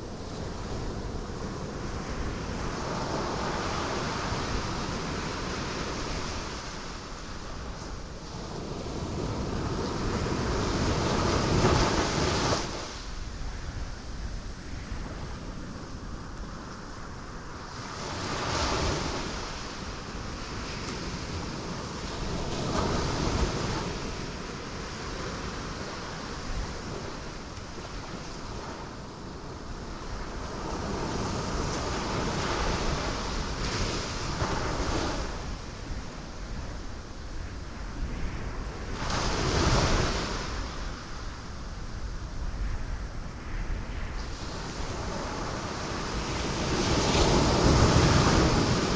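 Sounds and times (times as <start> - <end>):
waves crashing on rocks: 0.0 - 13.2, 17.6 - 36.9, 44.3 - 48.9
surf washing: 0.0 - 48.9.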